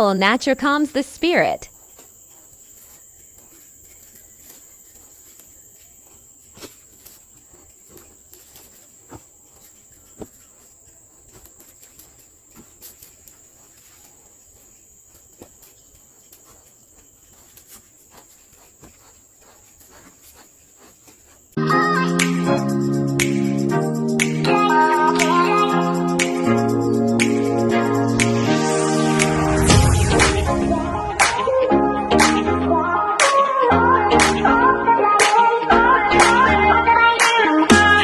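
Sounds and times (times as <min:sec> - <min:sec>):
crickets trilling: 0:00.0 - 0:33.9
faint clicks and ticks: 0:01.2 - 0:21.6.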